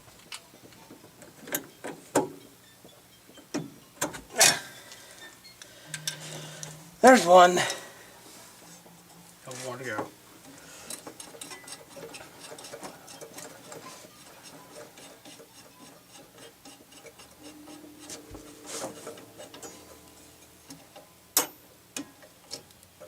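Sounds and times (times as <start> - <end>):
hand tools ticking on metal: 10.9 - 17.6.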